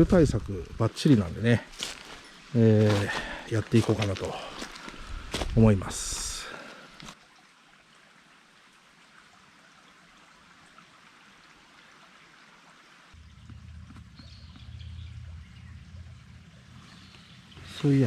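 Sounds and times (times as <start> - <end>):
faint rushing water: 0.0 - 18.0
low rumble: 13.2 - 17.8.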